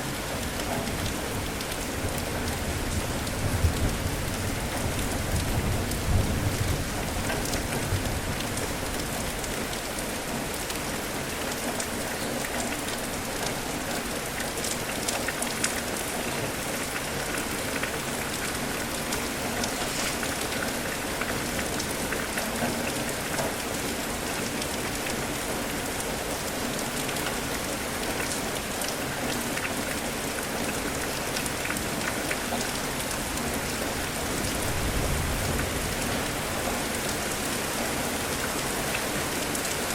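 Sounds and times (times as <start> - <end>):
steady rain: 0.0 - 39.9
low rumble of thunder: 2.0 - 8.8, 34.4 - 36.4.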